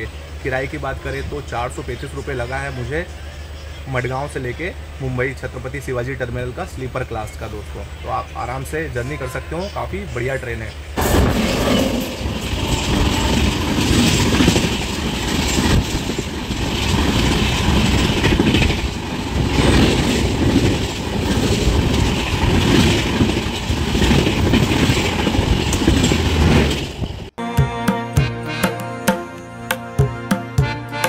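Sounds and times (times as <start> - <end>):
wheels rumbling on rails: 9.6 - 27.4.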